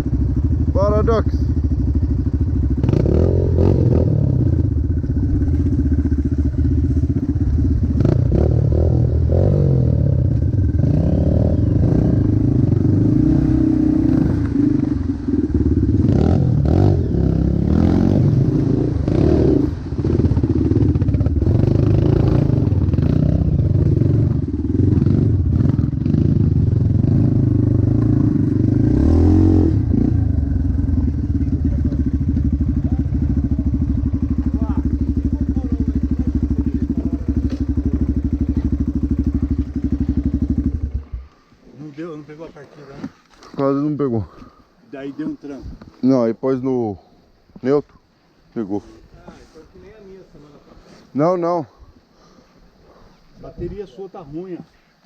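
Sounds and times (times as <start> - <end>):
motocross bike engine revving: 0.0 - 42.2.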